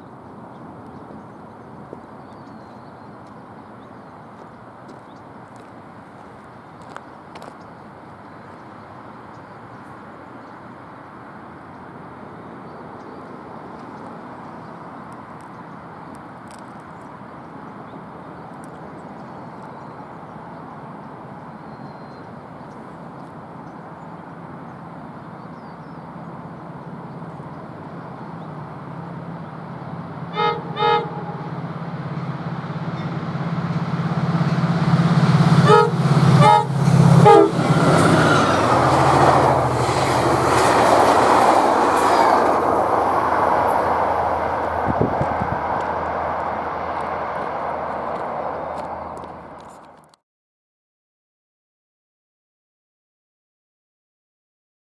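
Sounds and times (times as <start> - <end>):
diesel locomotive engine drone: 13.5 - 50.1
train wheels rumbling on rails: 24.1 - 50.0
train horn blasts: 29.2 - 40.6.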